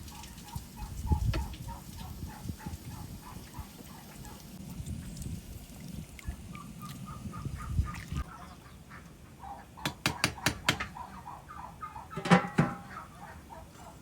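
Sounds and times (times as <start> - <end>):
domestic fowl calling: 6.5 - 14.0.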